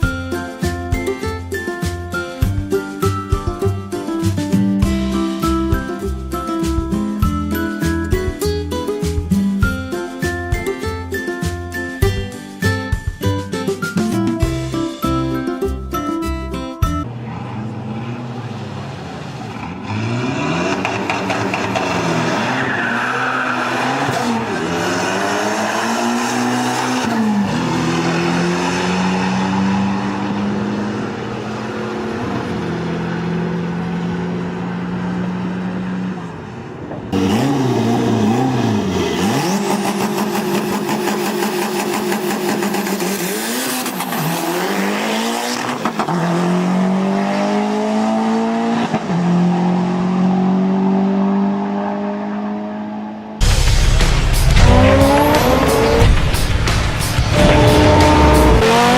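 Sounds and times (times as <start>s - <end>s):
car engine revving hard: 17.1s - 36.1s, 37.1s - 58.9s.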